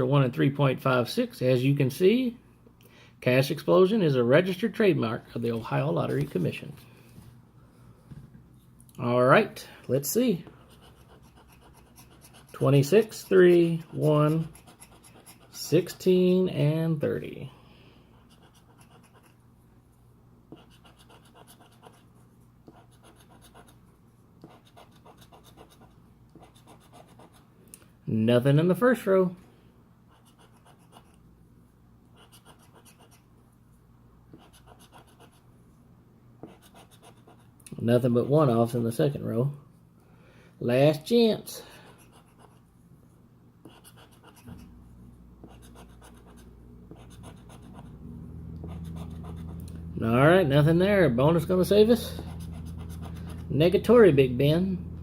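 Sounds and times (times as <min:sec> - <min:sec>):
lottery ticket being scratched: 0:10.6 - 0:16.1, 0:48.6 - 0:49.6, 0:50.6 - 0:54.1.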